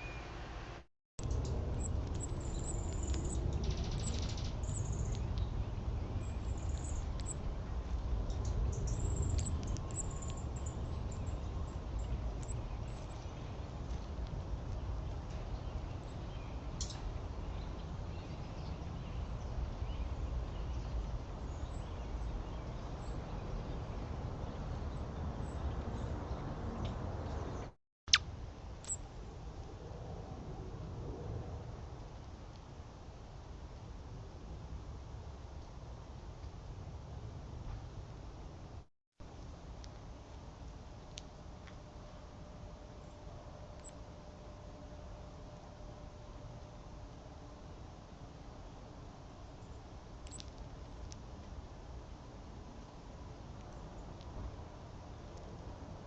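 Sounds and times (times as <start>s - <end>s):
low background rumble: 0.0s - 27.7s
small birds chirping: 1.2s - 28.2s, 49.6s - 51.2s.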